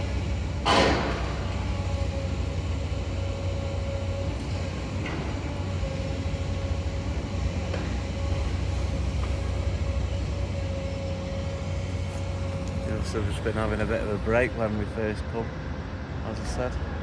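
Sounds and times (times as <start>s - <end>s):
excavator diesel rumble: 0.0s - 17.0s
mid-pitched whine: 8.1s - 17.0s.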